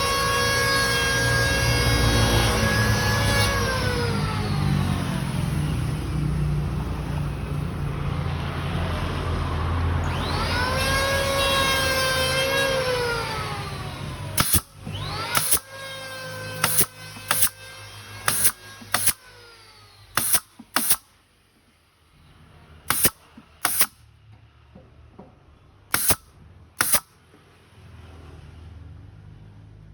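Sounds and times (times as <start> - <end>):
power saw motor whining: 10.0 - 21.0, 22.9 - 24.0, 25.9 - 26.2, 26.8 - 27.1
brad nailer shots: 10.1 - 21.2, 22.9 - 24.1, 25.9 - 27.1.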